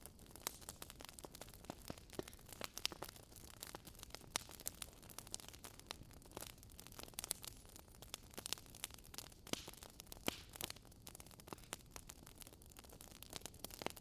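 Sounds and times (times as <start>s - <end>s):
fire crackling and popping: 0.0s - 14.0s.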